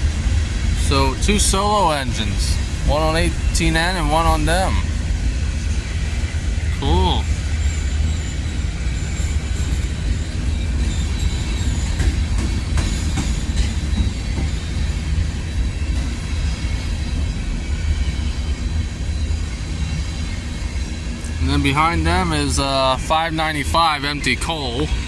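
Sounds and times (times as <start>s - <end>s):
freight train rumbling past: 0.0s - 25.0s
metallic clanks from train cars: 7.4s - 18.4s.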